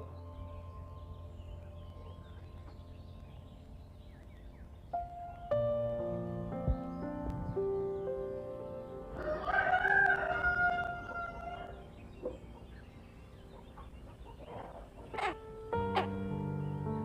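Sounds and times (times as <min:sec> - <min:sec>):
soft background music: 0:00.0 - 0:17.0
rooster crowing: 0:09.2 - 0:11.9.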